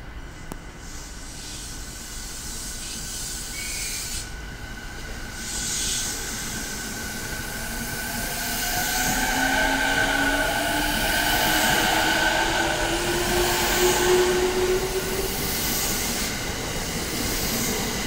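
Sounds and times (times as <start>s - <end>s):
air hiss bursts: 0.8s - 4.4s, 5.1s - 18.0s
traction motor whine: 6.4s - 17.0s.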